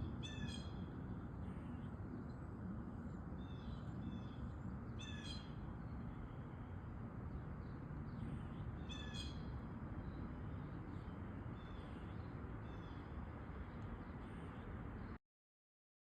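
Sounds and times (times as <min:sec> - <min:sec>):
blue jay harsh call: 0:00.2 - 0:00.8, 0:05.0 - 0:05.6, 0:08.8 - 0:09.4.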